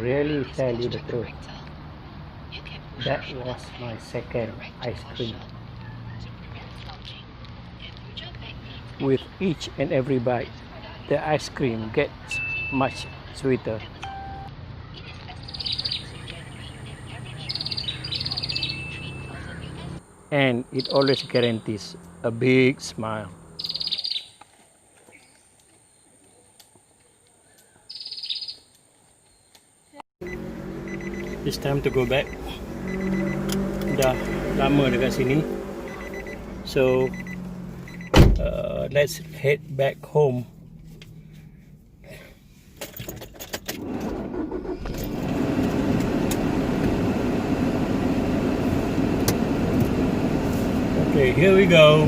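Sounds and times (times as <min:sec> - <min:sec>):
faint outdoor ambience: 0:00.0 - 0:52.0
car engine starting and running: 0:15.5 - 0:23.9, 0:30.2 - 0:52.0.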